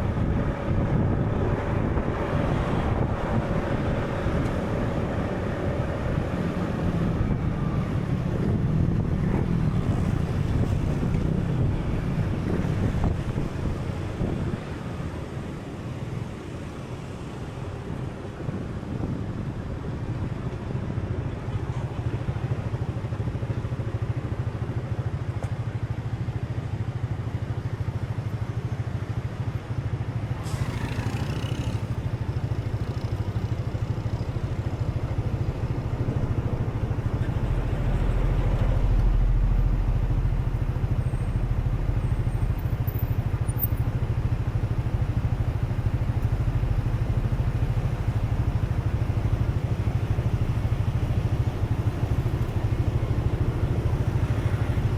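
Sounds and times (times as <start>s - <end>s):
steady low rumble: 0.0s - 22.9s, 33.2s - 54.9s.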